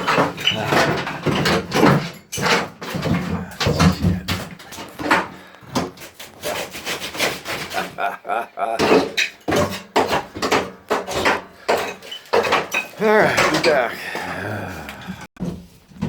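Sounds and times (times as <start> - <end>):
rasping scrapes: 2.4 - 8.2.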